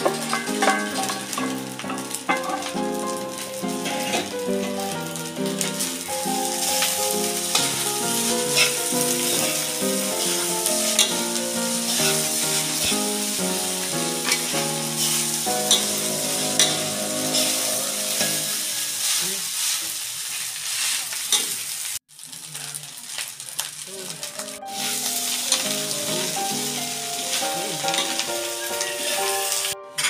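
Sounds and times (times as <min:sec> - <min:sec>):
metal spatula scraping a pan: 0:00.0 - 0:05.0, 0:05.6 - 0:20.0, 0:27.4 - 0:29.7
background music: 0:00.0 - 0:19.2, 0:24.4 - 0:30.0
rice sizzling in a wok: 0:00.0 - 0:30.0.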